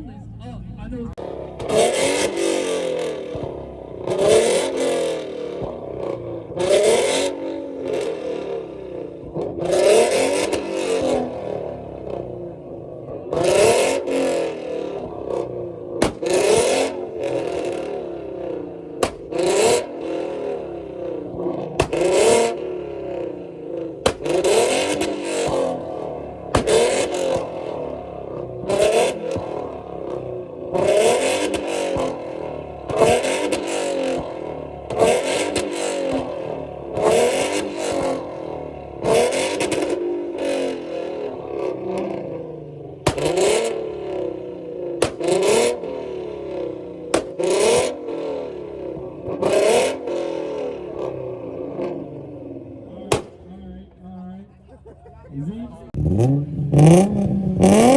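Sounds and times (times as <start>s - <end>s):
car engines revving hard: 0.0s - 57.9s
exhaust pops and bangs: 1.5s - 7.2s, 13.0s - 50.1s, 53.0s - 53.6s.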